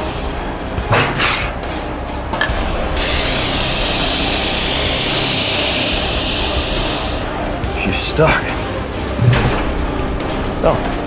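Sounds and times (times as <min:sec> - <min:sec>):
steady air hiss: 0:00.0 - 0:11.0
mechanical scraping and ratcheting: 0:03.0 - 0:11.0.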